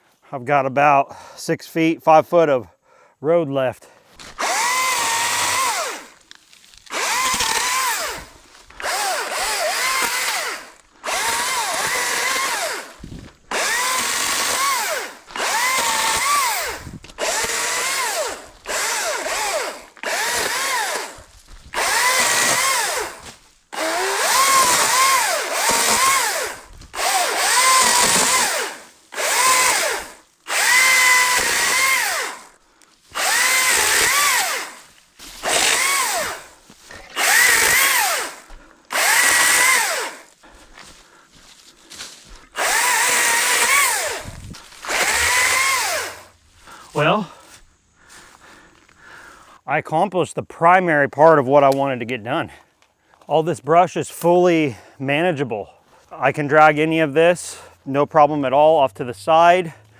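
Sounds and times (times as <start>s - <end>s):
battery chainsaw cutting: 4.2s - 49.4s.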